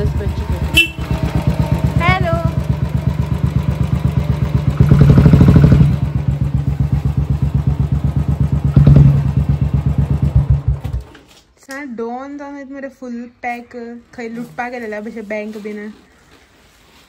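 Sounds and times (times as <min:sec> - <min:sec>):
motorcycle engine idling: 0:00.0 - 0:11.1.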